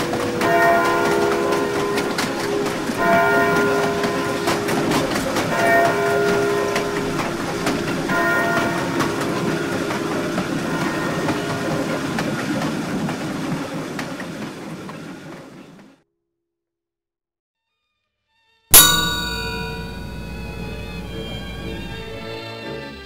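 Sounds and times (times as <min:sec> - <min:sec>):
train wheels clicking over rail joints: 0:00.0 - 0:15.8
train drone: 0:00.0 - 0:15.9, 0:18.8 - 0:23.0.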